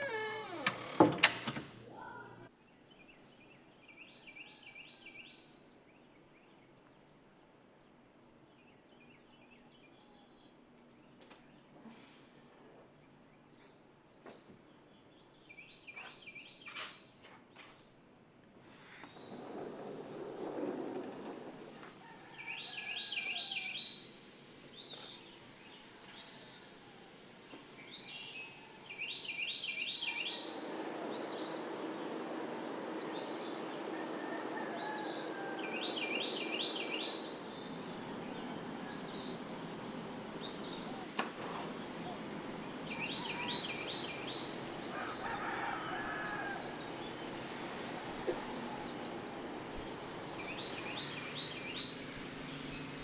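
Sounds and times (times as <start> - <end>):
steady background hiss: 0.0 - 4.0, 18.2 - 53.0
bird chirps: 27.9 - 53.0
bird warbling call: 32.5 - 53.0.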